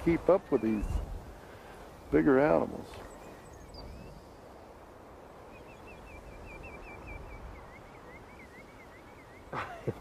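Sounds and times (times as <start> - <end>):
small bird singing: 0.0 - 10.0.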